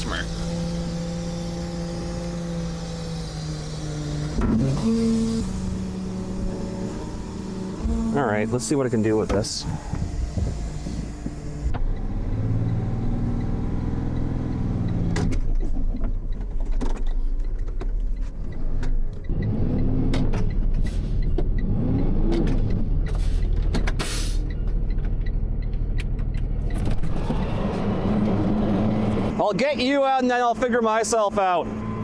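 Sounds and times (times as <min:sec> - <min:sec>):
truck engine revving: 0:00.0 - 0:15.5, 0:18.5 - 0:32.0.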